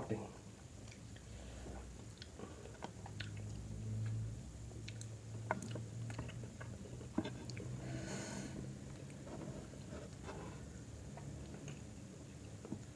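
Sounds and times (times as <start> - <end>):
low steady hum: 0.0 - 12.9
chewing food: 0.8 - 7.8
wet mouth clicks: 2.1 - 4.1, 4.8 - 5.8.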